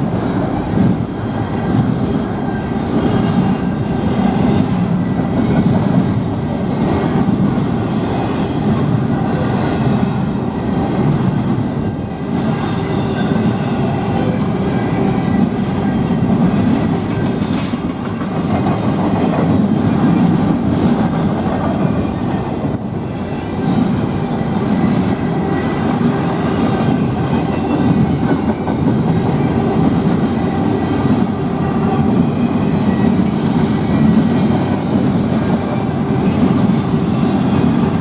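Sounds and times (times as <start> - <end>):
train wheels clattering on rails: 0.0 - 38.0.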